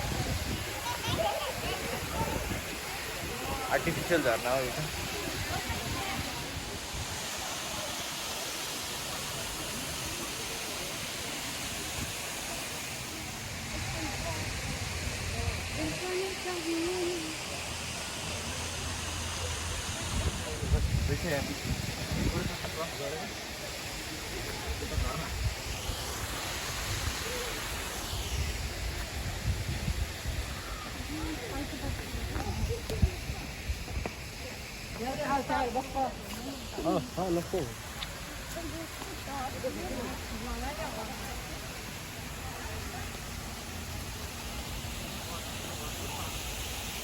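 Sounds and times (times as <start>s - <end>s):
wind buffeting microphone: 0.0s - 4.1s, 4.8s - 7.3s, 19.6s - 22.8s, 28.3s - 34.3s
waterfall rushing: 0.0s - 47.0s.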